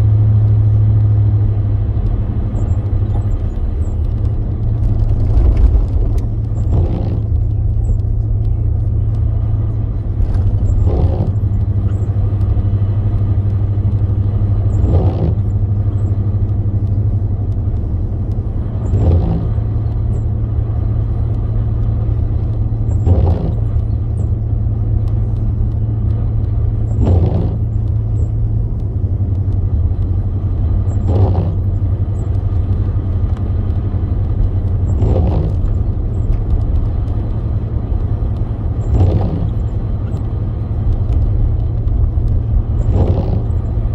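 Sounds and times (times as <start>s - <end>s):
car road and engine drone: 0.0s - 43.9s
windshield wipers swishing: 2.6s - 16.2s, 16.8s - 43.9s.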